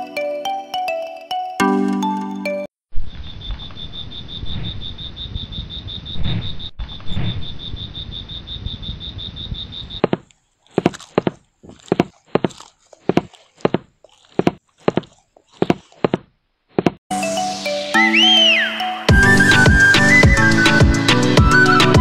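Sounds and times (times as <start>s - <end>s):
crunchy chewing sounds: 9.9s - 17.0s.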